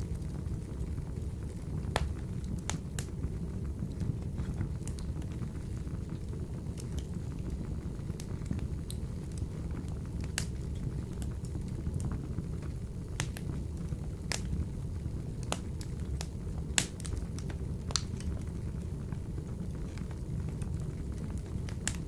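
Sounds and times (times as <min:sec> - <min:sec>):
fire crackling and popping: 0:00.0 - 0:22.0
low rumble of flames: 0:00.0 - 0:22.0.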